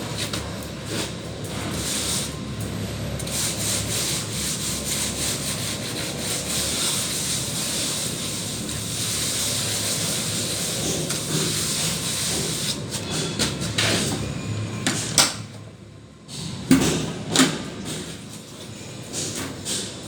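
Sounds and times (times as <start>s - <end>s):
trowel scraping plastered wall: 0.0s - 2.4s, 3.2s - 14.2s.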